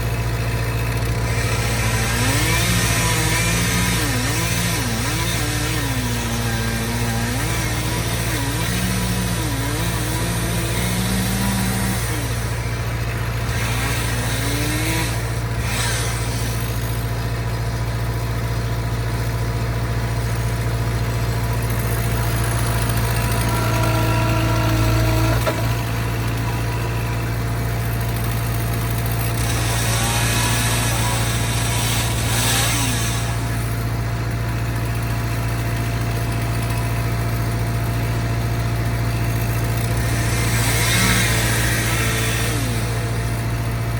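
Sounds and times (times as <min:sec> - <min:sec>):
skid steer engine running: 0:00.0 - 0:43.9
high engine whine: 0:20.1 - 0:34.7.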